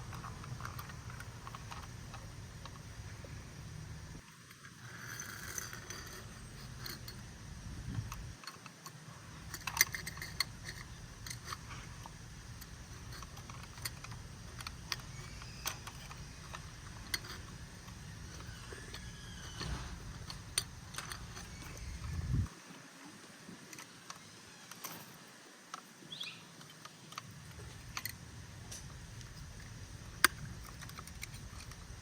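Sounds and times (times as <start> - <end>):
plastic toy clicks and rattles: 0.0 - 2.8, 4.5 - 7.2, 8.0 - 22.2, 26.6 - 28.2, 30.2 - 32.0
low steady hum: 0.0 - 32.0.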